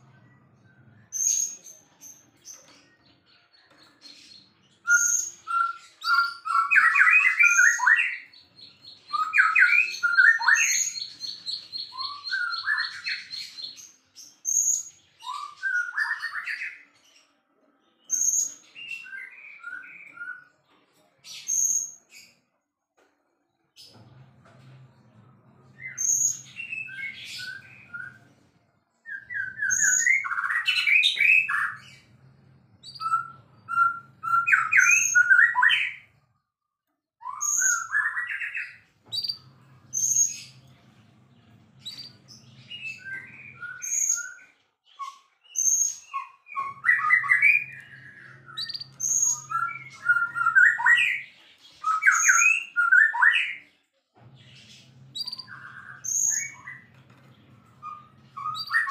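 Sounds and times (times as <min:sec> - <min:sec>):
songbird whistling and chattering: 0:04.8 - 0:16.8, 0:29.1 - 0:32.1, 0:32.8 - 0:36.1, 0:37.2 - 0:40.6, 0:41.8 - 0:53.6, 0:55.2 - 0:56.9, 0:57.7 - 0:58.9.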